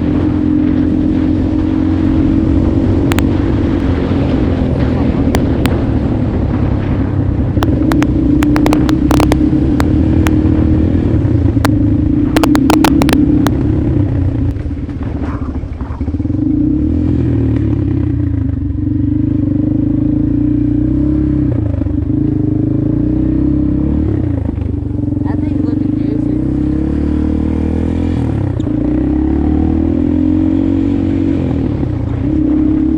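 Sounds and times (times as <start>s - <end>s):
motorcycle engine running: 0.0s - 32.9s
sharp clicks and clatter: 2.9s - 16.4s.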